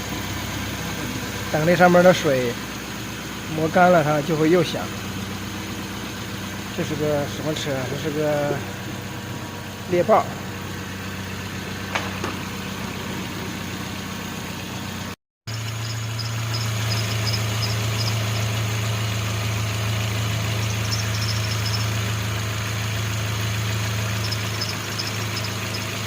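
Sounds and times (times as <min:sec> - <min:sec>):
car engine idling: 0:00.0 - 0:26.0
faint high-pitched chirps: 0:15.5 - 0:18.6, 0:20.6 - 0:22.0, 0:24.2 - 0:26.0.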